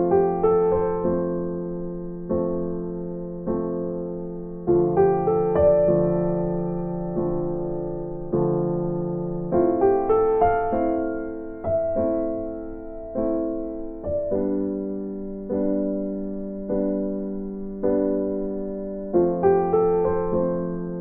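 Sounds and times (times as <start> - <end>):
soft keyboard chords: 0.0 - 21.0.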